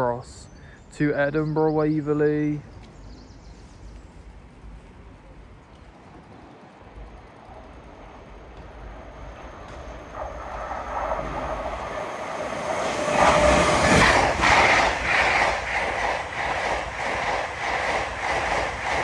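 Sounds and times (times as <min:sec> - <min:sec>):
electric train passing: 0:06.0 - 0:19.0.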